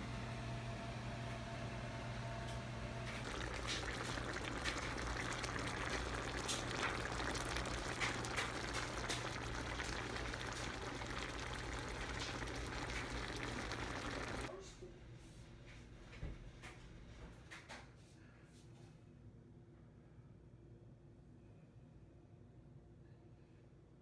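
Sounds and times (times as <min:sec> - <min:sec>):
food sizzling in a skillet: 0:03.2 - 0:14.5.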